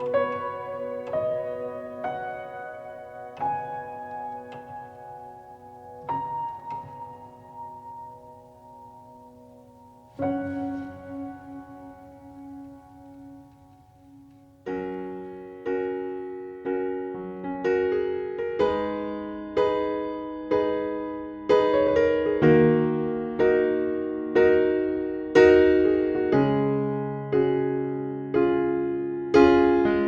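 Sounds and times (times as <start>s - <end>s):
piano playing slow chords: 0.0s - 20.2s.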